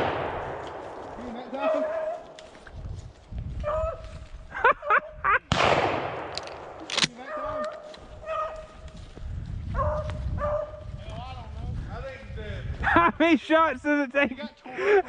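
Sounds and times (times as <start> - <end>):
shotgun shots: 0.0 - 1.6, 5.5 - 7.2
dog yelping: 7.2 - 8.7
hound baying: 7.2 - 8.8, 9.8 - 10.8.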